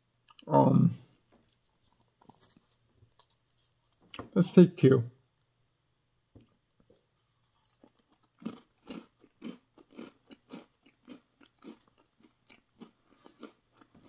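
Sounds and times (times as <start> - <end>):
crunching of crackers being chewed: 1.4 - 4.1, 6.7 - 14.0.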